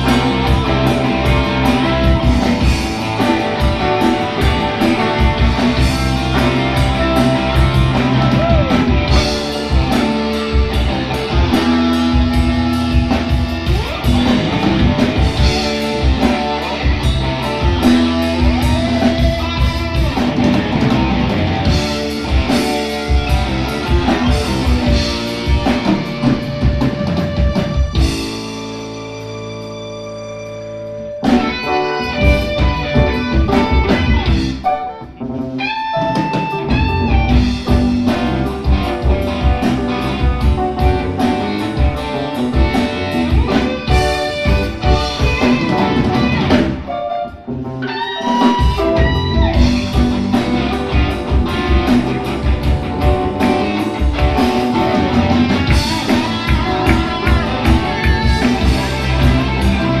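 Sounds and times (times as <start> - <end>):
drum kit: 0.0 - 60.0
electric guitar: 0.0 - 60.0
rock band playing: 0.0 - 60.0.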